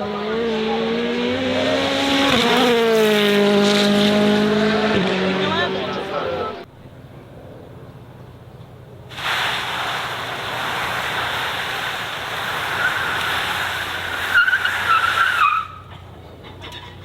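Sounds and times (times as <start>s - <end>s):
car tyres squealing: 9.2s - 17.0s.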